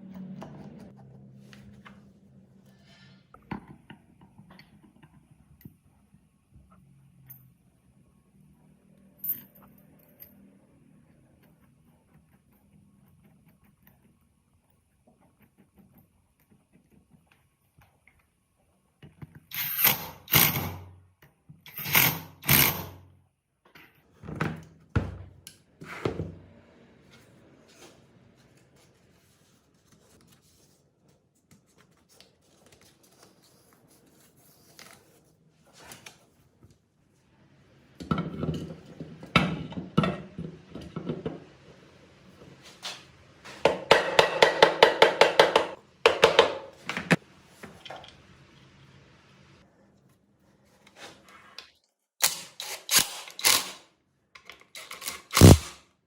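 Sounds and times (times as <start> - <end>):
tools knocking on metal: 43.6 - 46.7.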